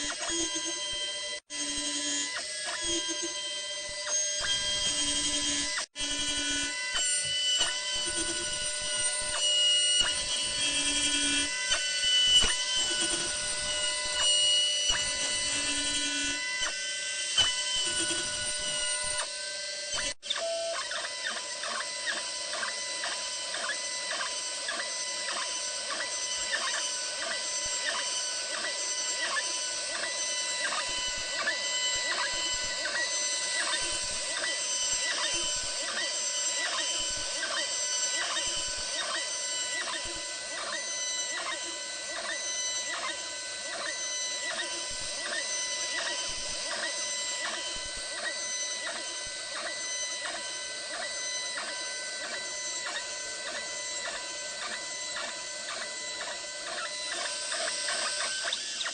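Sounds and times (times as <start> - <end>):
stepper motors whining: 0.0 - 58.9.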